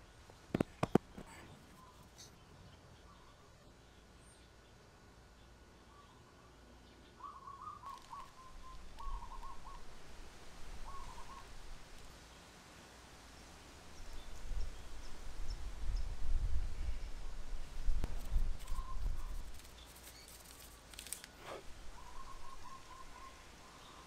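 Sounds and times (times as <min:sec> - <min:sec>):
bird warbling: 0:07.2 - 0:09.8.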